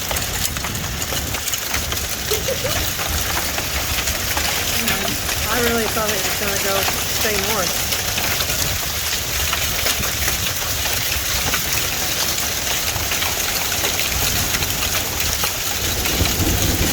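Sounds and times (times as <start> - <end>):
hailstones ticking: 0.0 - 16.9
heavy rain hiss: 0.7 - 16.9.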